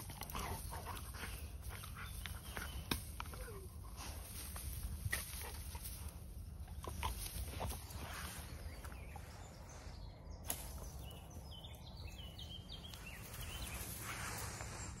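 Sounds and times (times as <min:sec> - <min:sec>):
small bird chirping: 0:06.6 - 0:14.6.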